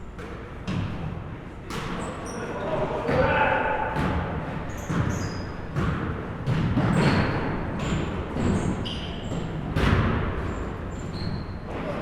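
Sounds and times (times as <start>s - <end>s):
sneaker squeaks: 1.7s - 12.0s
basketball bouncing on floor: 4.0s - 8.7s.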